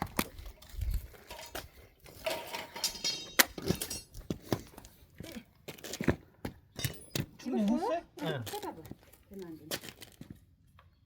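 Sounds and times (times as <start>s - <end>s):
metal objects knocking and clinking: 1.3s - 4.3s
ringing metallic rattle: 2.2s - 4.1s.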